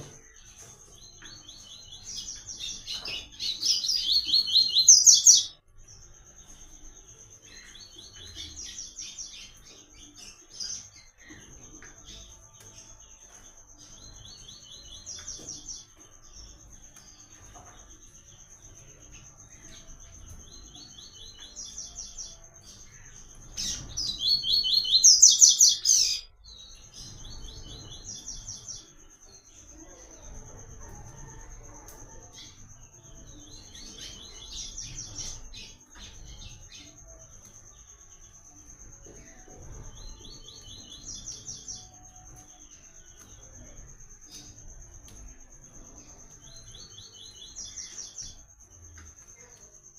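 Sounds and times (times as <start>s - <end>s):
bird singing trilled phrases: 23.6s - 26.6s.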